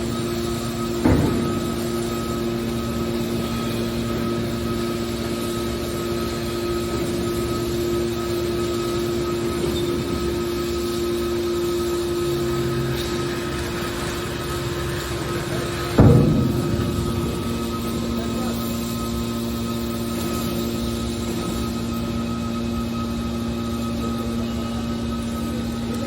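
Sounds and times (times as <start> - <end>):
hydraulic baler humming: 0.0 - 26.0
sharp metal clank: 15.9 - 19.8.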